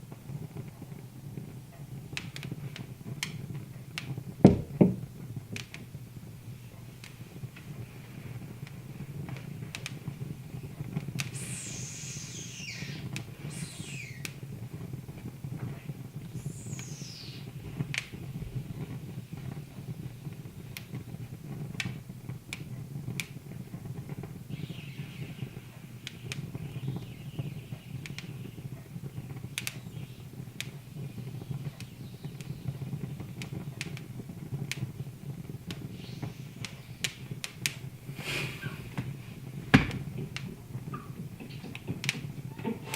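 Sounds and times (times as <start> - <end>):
wood fire crackling and popping: 0.0 - 42.9
high falling whistles: 11.4 - 14.4, 16.3 - 17.9, 24.5 - 28.7, 35.8 - 37.2.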